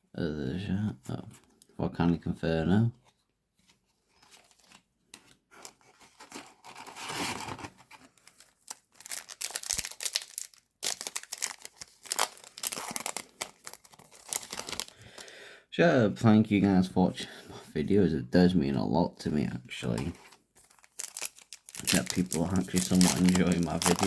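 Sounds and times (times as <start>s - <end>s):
cards rustling: 4.0s - 15.3s, 19.8s - 24.0s
foil wrappers tearing and crinkling: 8.1s - 15.3s, 20.6s - 24.0s.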